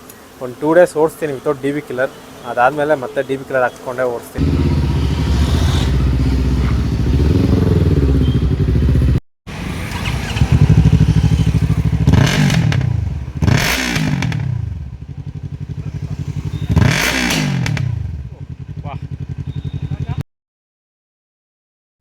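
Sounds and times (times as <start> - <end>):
exhaust crack: 4.4 - 19.3
motorcycle engine revving: 4.4 - 20.2.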